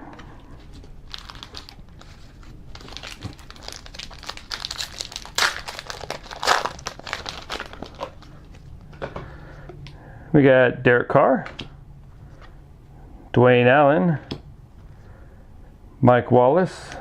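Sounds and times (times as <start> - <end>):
plastic wrapper crinkling: 0.6 - 9.2.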